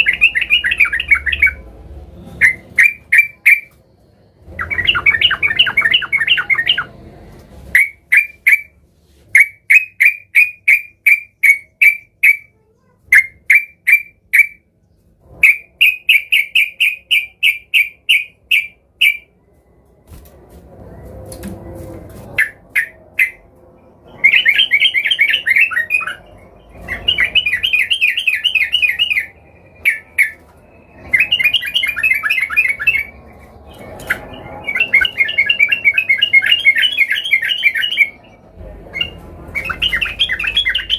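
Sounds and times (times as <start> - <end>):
bulbul singing sharp repeated notes: 9.4 - 14.7, 15.4 - 19.3, 22.4 - 23.4.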